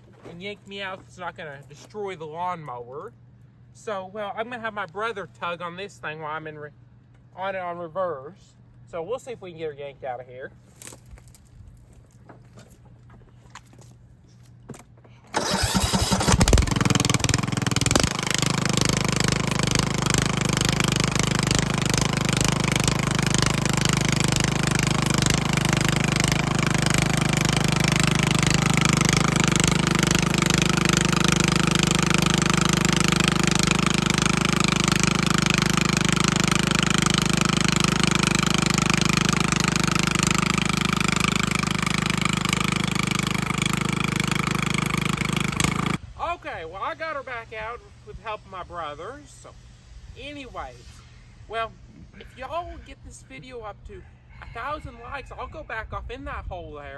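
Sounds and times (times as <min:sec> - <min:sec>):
small engine starting and running: 0:15.3 - 0:46.0.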